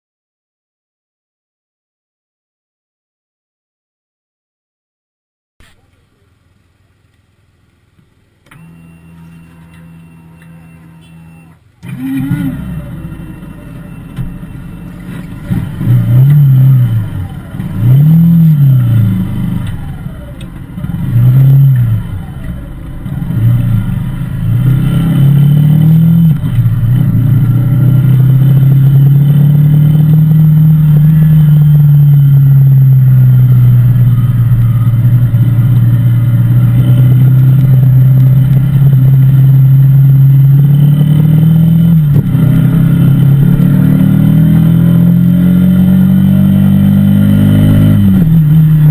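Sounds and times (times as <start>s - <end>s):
motorcycle engine revving: 10.8s - 48.9s.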